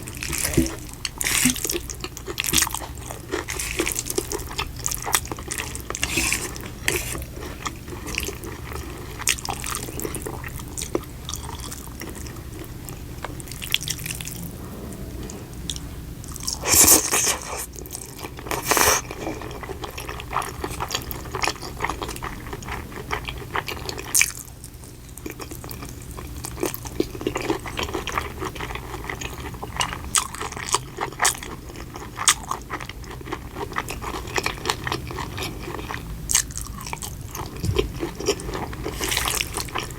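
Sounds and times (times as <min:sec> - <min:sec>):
wet chewing mouth noises: 0:00.0 - 0:24.4.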